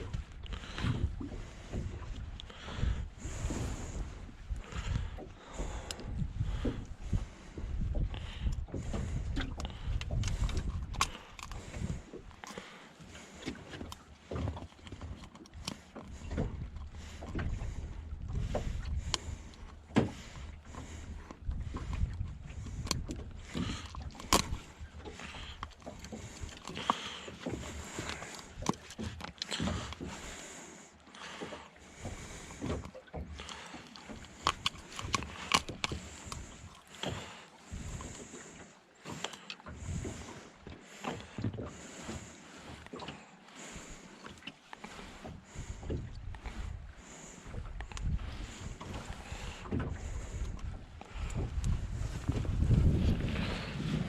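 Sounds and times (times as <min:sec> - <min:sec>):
fishing gear knocking against hull: 0:00.1 - 0:30.4, 0:31.2 - 0:38.3.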